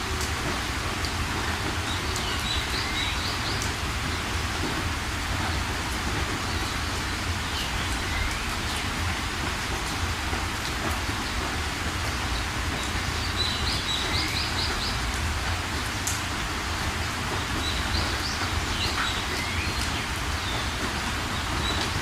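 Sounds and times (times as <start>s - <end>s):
steady rain: 0.0s - 22.0s.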